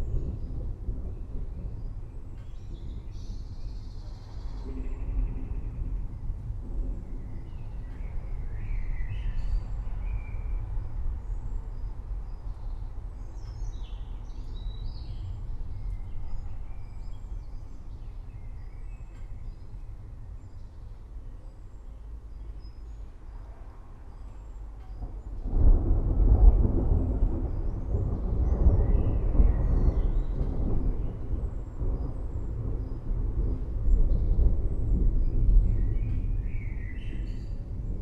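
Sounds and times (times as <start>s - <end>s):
rain and storm rumble: 0.0s - 38.0s.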